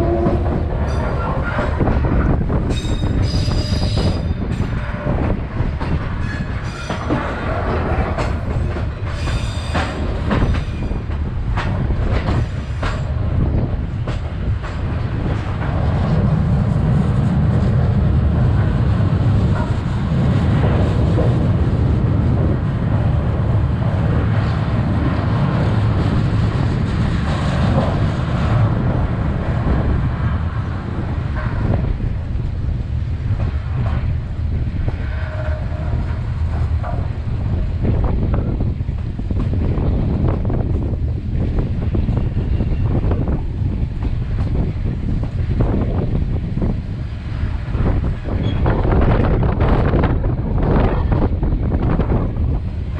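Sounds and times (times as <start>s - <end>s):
train rumbling on rails: 0.0s - 52.9s.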